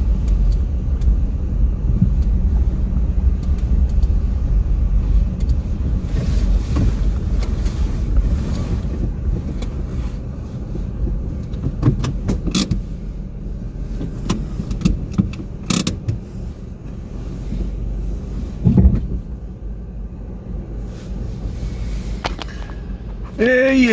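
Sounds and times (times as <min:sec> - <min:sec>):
vehicle engine rumbling: 0:00.0 - 0:23.9.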